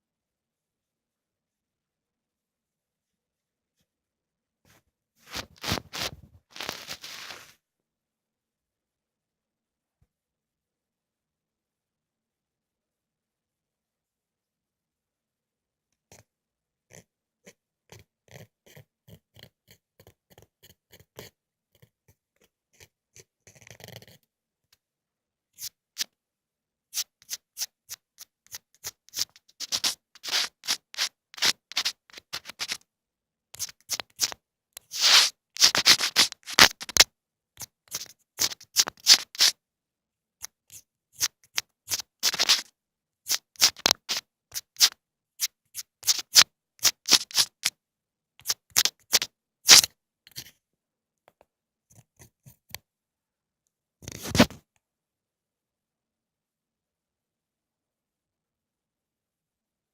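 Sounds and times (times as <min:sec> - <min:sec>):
ear cleaning scratching: 0:05.3 - 0:07.5, 0:27.0 - 0:32.8, 0:33.6 - 0:39.6, 0:40.4 - 0:42.7, 0:43.3 - 0:47.7, 0:48.4 - 0:50.4.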